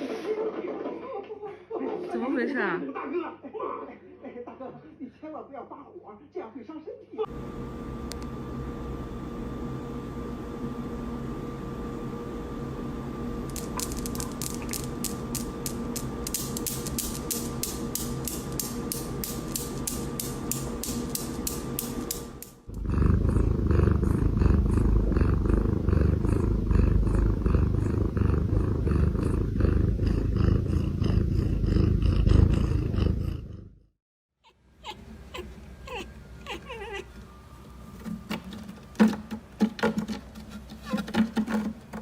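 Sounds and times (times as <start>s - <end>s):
evenly spaced ticks: 13.5s - 22.6s
cat purring: 13.5s - 33.9s.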